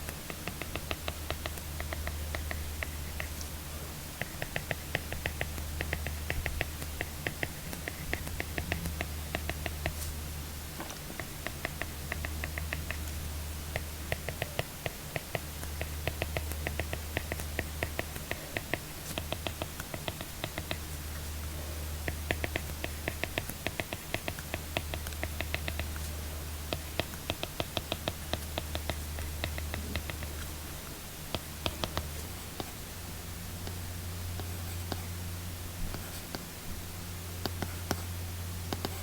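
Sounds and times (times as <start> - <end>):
stylus tapping and scratching screen: 0.0 - 3.6, 4.2 - 10.2, 10.8 - 32.8, 33.6 - 35.2, 35.8 - 36.5, 37.4 - 39.0
steady low hum: 0.0 - 39.0.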